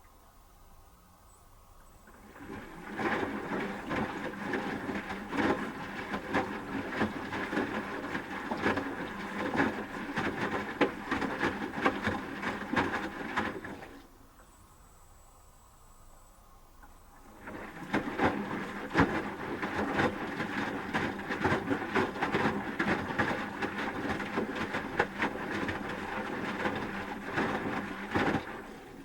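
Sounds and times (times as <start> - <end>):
wet laundry knocking in drum: 2.5 - 13.8, 17.5 - 28.7.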